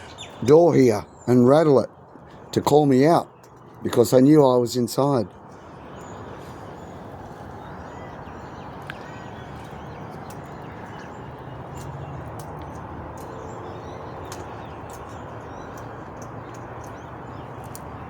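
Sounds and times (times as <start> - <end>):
light clicks: 14.2 - 17.9.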